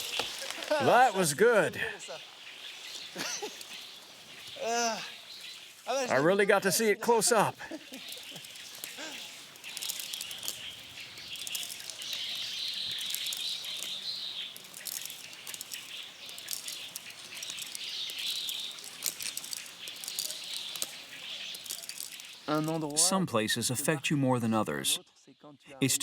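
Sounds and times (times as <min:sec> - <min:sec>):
wild birds chirping: 0:00.0 - 0:26.0.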